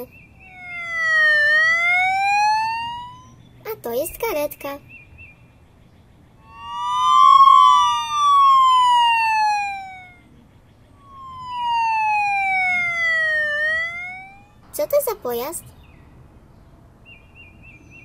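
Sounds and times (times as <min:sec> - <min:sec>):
fire-engine siren wailing: 0:00.0 - 0:03.4, 0:06.4 - 0:10.3, 0:11.0 - 0:14.6
cartoon sirens gliding up and down: 0:00.0 - 0:03.8, 0:06.4 - 0:10.4, 0:11.0 - 0:14.6
faint birdsong: 0:00.0 - 0:18.0.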